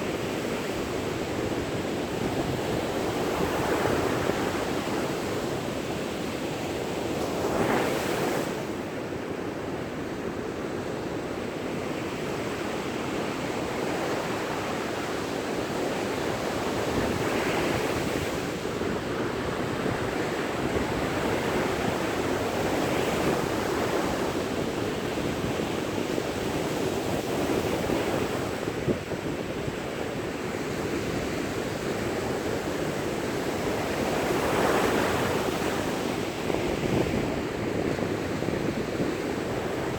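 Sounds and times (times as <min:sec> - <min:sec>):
surf washing: 0:13.3 - 0:39.9
wind on microphone: 0:15.6 - 0:39.9.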